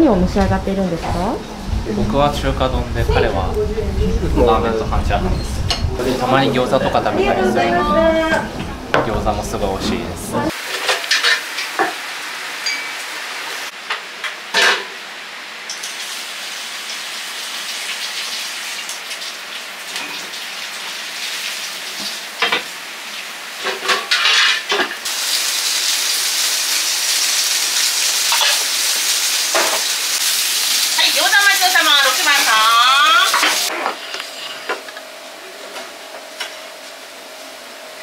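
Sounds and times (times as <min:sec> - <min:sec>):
food sizzling in hot oil: 0:10.5 - 0:34.7
metal utensils clanking on pan: 0:10.7 - 0:12.0, 0:23.6 - 0:25.0, 0:28.3 - 0:28.6.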